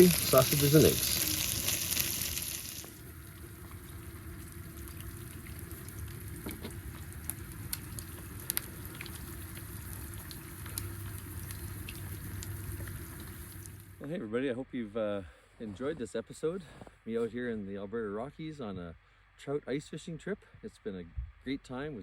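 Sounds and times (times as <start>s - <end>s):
sausages and eggs sizzling: 0.0s - 14.0s.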